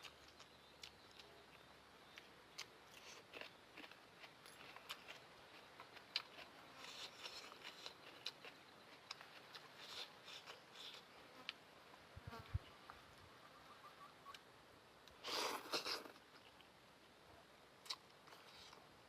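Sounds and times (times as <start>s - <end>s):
wet mouth chewing sounds: 0.0s - 11.1s.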